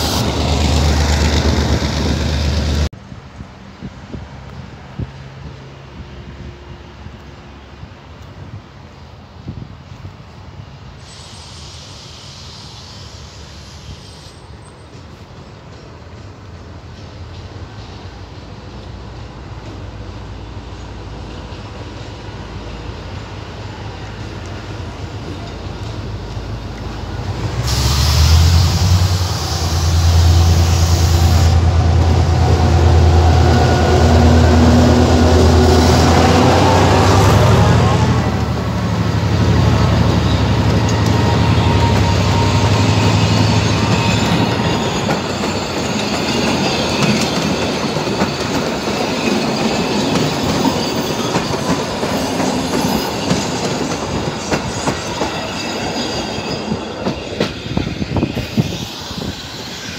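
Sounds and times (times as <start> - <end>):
train engine hum: 0.0 - 59.9
faint high wheel squeal: 11.0 - 15.1, 39.7 - 59.9.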